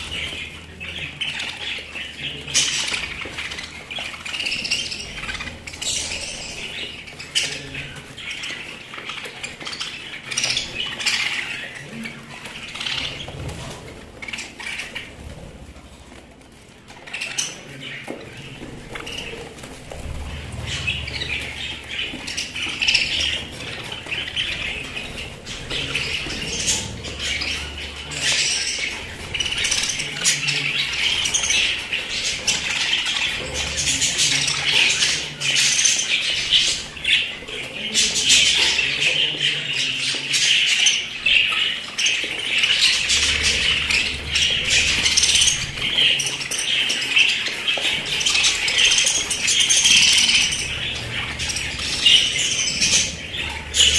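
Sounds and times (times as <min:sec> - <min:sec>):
budgerigars chattering and chirping: 0:00.0 - 0:53.9.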